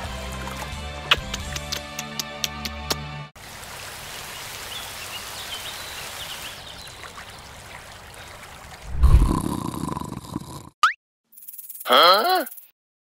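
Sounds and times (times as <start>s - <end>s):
rain falling on mud: 3.4s - 8.9s.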